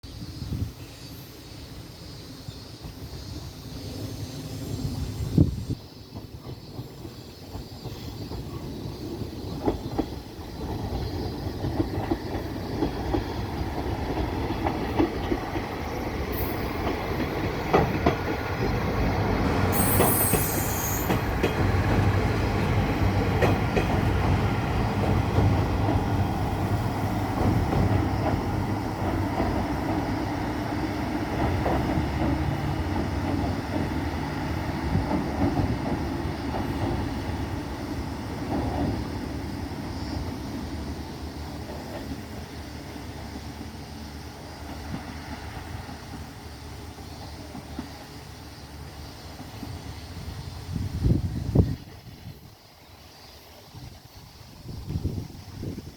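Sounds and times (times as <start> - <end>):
diesel train rumbling on rails: 0.0 - 55.9
wheels clicking over rail joints: 6.0 - 39.4.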